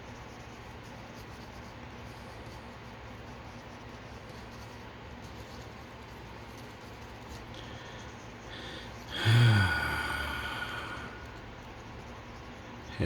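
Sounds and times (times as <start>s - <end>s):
man sighing with a low groan: 9.1s - 11.3s.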